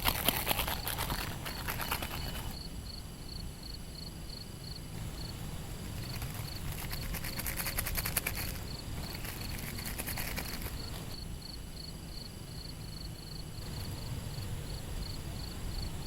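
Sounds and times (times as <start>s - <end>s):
rapid crackling and rustling: 0.0s - 2.6s, 5.0s - 11.2s
insect chirping: 0.0s - 16.0s
low outdoor rumble: 0.0s - 16.0s.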